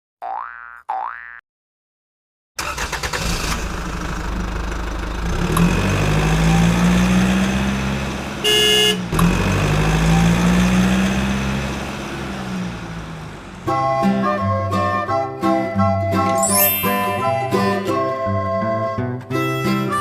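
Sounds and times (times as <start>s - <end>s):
vehicle engine running: 3.6s - 13.7s
horn honk: 8.4s - 9.1s.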